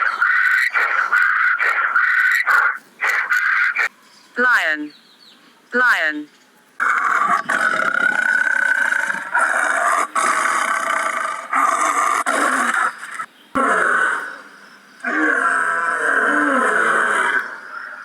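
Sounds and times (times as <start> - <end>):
lion growling and roaring: 6.8 - 18.0.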